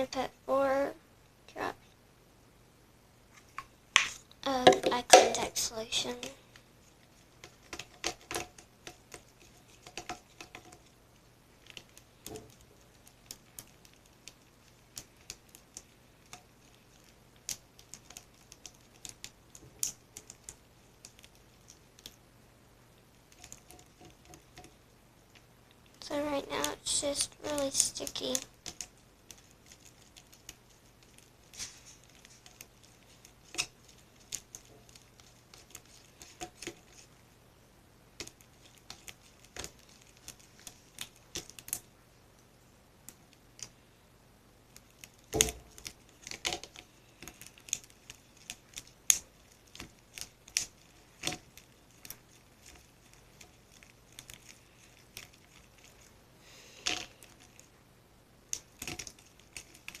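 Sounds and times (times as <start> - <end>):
sticky slime clicks and crackles: 44.7 - 56.1, 58.5 - 60.0.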